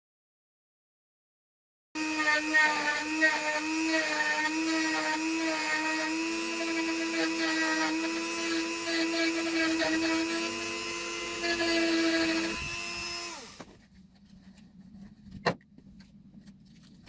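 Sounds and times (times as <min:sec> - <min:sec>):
rotary tool whining: 0:02.0 - 0:13.8.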